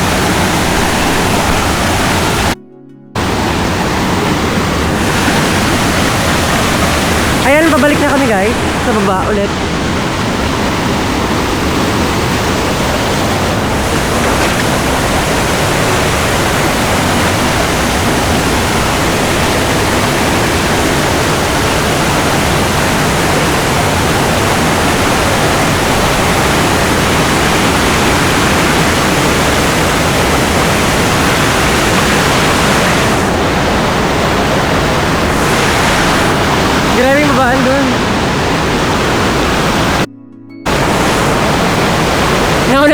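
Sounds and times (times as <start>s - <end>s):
waterfall rushing: 0.0s - 2.6s, 3.2s - 40.1s, 40.7s - 42.9s.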